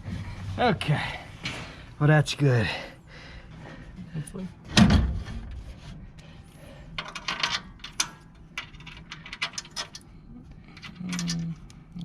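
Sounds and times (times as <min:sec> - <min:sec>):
metallic clicks of tools and bolts: 0:07.0 - 0:10.1, 0:10.7 - 0:11.7.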